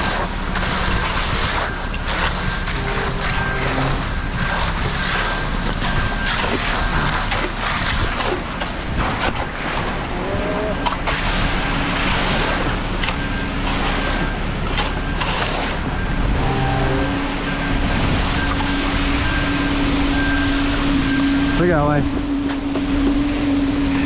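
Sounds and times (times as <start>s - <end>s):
tools scraping on concrete: 0.0s - 10.0s, 12.4s - 15.8s
wind buffeting microphone: 0.0s - 13.8s, 15.7s - 24.0s
diesel engine running: 0.0s - 24.0s
short beep: 13.1s - 22.0s.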